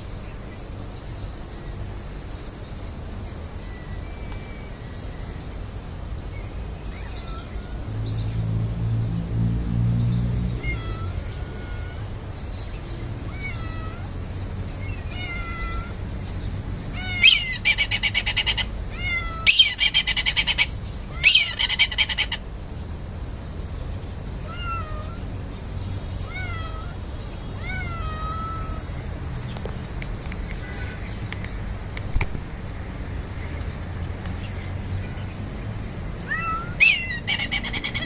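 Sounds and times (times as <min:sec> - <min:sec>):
cat meowing: 0:06.8 - 0:08.0, 0:10.5 - 0:12.2, 0:13.2 - 0:14.2, 0:14.8 - 0:16.0, 0:16.9 - 0:20.2, 0:24.4 - 0:25.3, 0:26.2 - 0:28.9, 0:30.5 - 0:31.2, 0:36.2 - 0:38.0.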